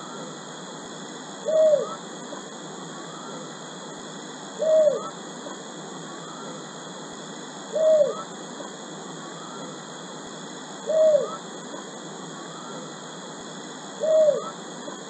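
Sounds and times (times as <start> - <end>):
steady high hiss: 0.0 - 15.0
bird hooting call: 1.4 - 2.1, 3.0 - 3.6, 4.6 - 5.2, 6.1 - 6.6, 7.7 - 9.8, 10.8 - 13.0, 14.0 - 15.0.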